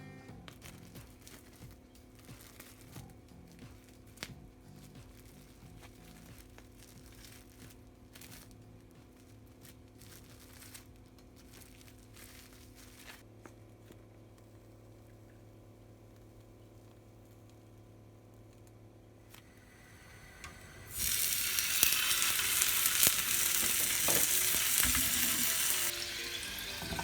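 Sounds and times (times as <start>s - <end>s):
rustling and crinkling: 0.3s - 19.5s
steady low hum: 14.6s - 21.1s.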